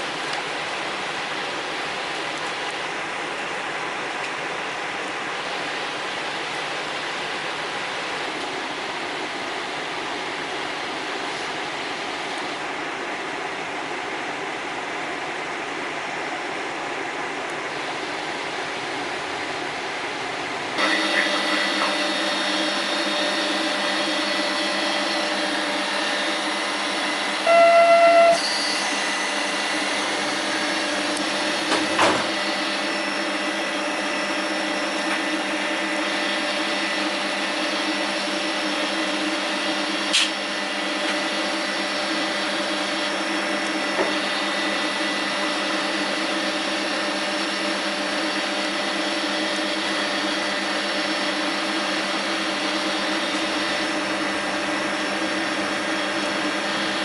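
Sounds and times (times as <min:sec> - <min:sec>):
train running drone: 0:00.0 - 0:57.0
loud pitched tone: 0:20.8 - 0:37.4.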